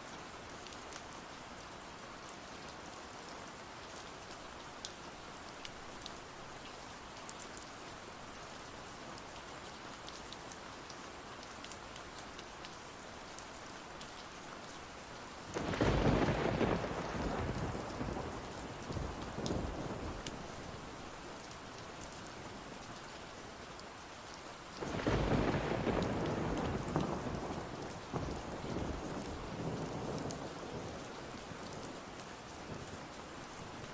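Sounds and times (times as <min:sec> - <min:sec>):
steady rain: 0:00.0 - 0:33.9
thunderclap rumbling: 0:15.6 - 0:18.5, 0:24.9 - 0:29.0.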